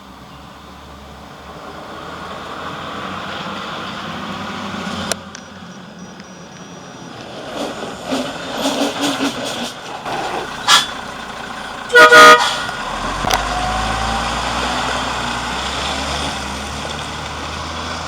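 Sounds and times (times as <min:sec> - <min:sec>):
truck diesel engine running: 0:06.7 - 0:18.0.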